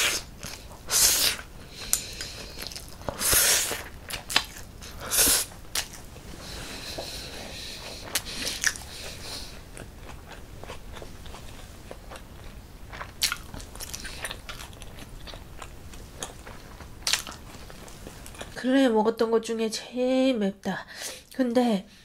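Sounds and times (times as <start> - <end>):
wet chewing and lip smacks: 1.4 - 6.3, 7.8 - 18.6.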